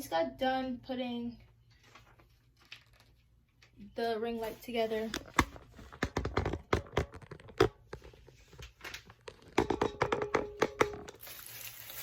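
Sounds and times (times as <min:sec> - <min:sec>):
wrapping crinkling: 0:01.8 - 0:03.6, 0:11.2 - 0:12.0.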